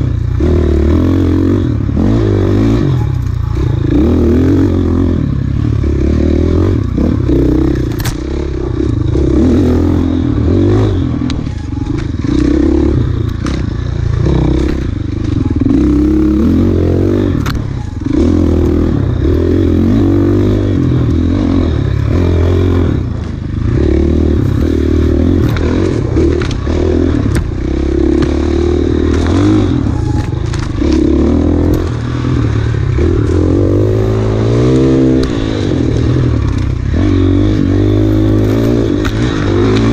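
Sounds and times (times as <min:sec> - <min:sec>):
dirt bike engine revving: 0:00.0 - 0:39.9
knocks and clatter from bike: 0:06.8 - 0:10.0, 0:10.6 - 0:16.3, 0:17.2 - 0:22.3, 0:23.0 - 0:39.9.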